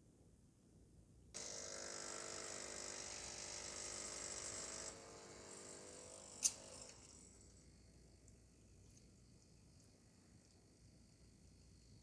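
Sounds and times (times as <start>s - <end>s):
espresso machine pump buzzing: 1.4s - 7.0s.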